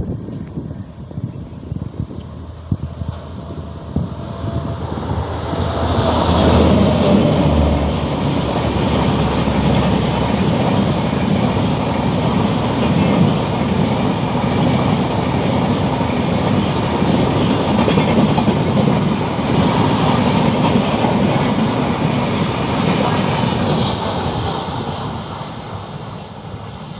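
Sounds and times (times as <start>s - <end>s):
train wheels rumbling and clattering: 0.0s - 26.9s.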